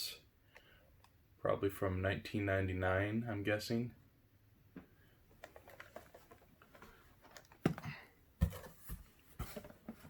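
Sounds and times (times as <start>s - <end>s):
toy boxes clicking and rustling: 5.4s - 7.8s
boxes thumping down: 6.8s - 10.0s.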